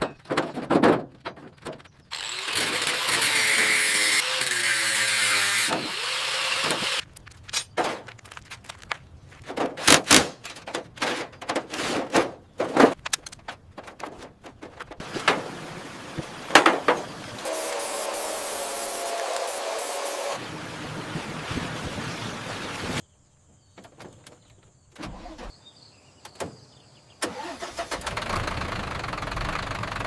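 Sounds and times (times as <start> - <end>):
sharp knocks and clatters: 0.0 - 2.1, 6.7 - 15.5
steady hiss: 17.2 - 20.4.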